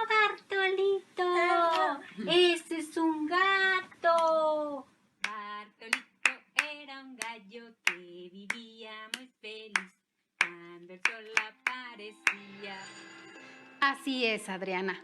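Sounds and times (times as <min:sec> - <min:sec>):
woman singing: 0:00.0 - 0:13.1
hand claps: 0:05.2 - 0:12.5.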